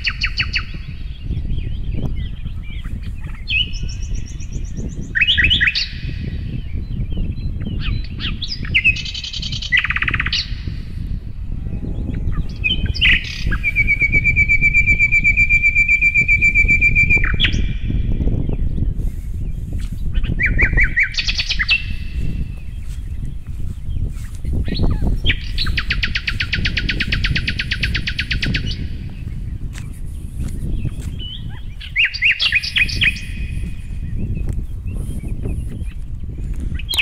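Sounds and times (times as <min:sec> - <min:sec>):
songbird singing: 0:00.0 - 0:37.0
steady low rumble: 0:10.1 - 0:14.6, 0:17.6 - 0:37.0.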